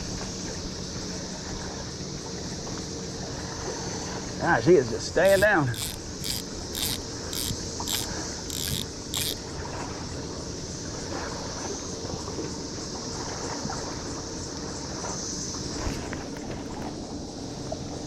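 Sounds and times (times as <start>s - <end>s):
cicadas chorus: 4.8s - 9.6s
rhythmic ticking: 5.3s - 9.4s.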